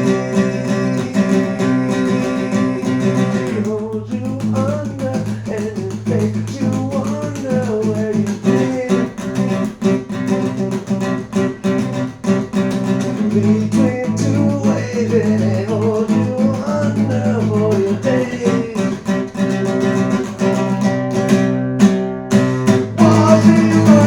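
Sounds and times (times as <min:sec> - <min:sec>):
strummed acoustic guitar: 0:00.0 - 0:24.0.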